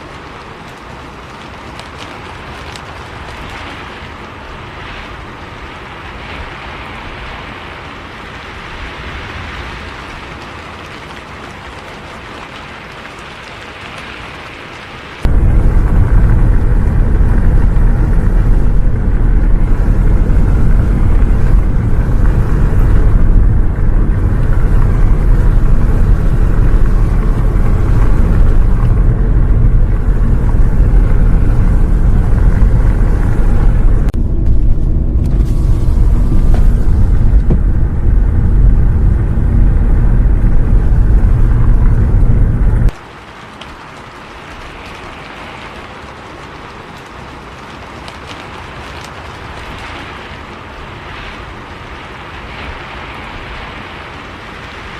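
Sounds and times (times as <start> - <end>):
rain hissing: 0.0 - 54.9
bus rumbling: 15.2 - 43.0.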